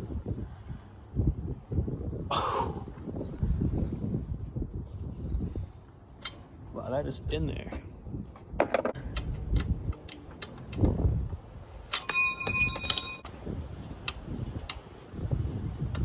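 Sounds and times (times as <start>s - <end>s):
metallic ring: 11.9s - 13.3s
tools clicking and knocking: 11.9s - 13.3s.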